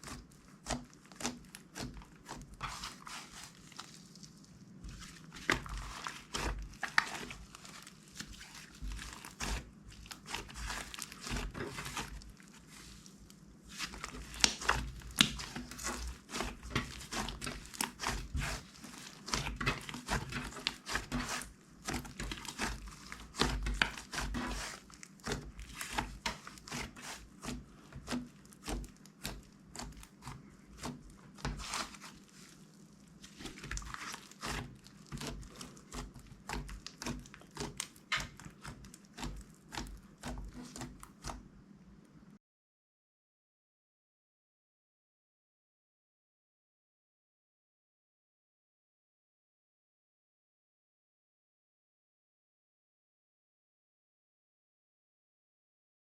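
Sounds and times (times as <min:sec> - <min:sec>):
slime crackling and popping: 0:00.0 - 0:32.5, 0:33.2 - 0:41.4.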